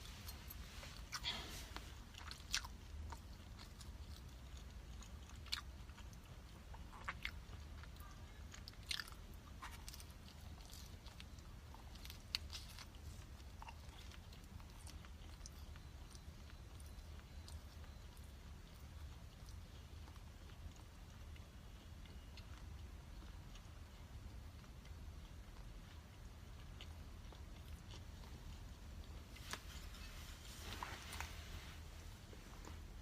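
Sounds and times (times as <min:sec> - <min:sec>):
person chewing crunchy food: 0:00.0 - 0:31.4.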